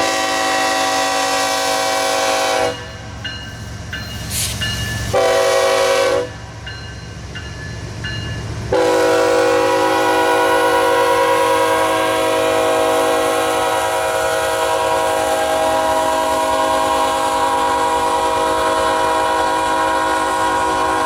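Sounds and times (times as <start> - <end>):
locomotive air horn blasts: 0.0 - 3.0, 5.1 - 6.4, 8.7 - 21.0.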